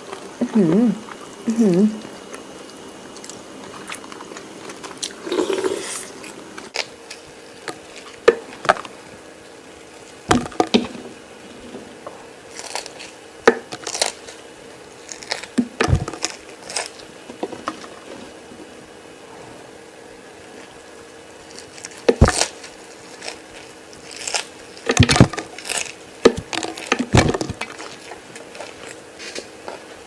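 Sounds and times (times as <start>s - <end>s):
person chewing: 2.0s - 9.0s, 12.0s - 18.4s, 21.4s - 30.0s.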